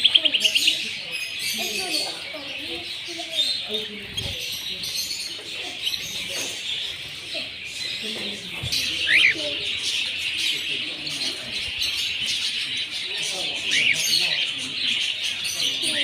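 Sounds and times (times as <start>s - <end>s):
small songbirds chirping: 0.0s - 16.0s
doves cooing: 7.3s - 12.4s.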